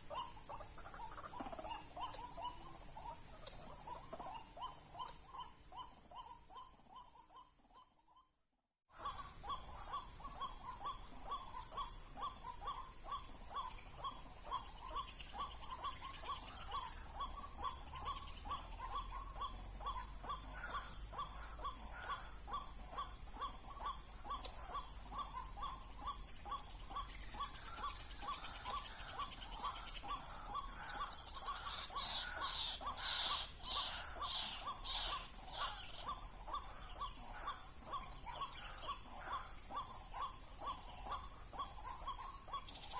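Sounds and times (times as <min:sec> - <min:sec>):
harsh high bird calls: 0:09.0 - 0:42.9
waterhen calling: 0:09.0 - 0:42.9.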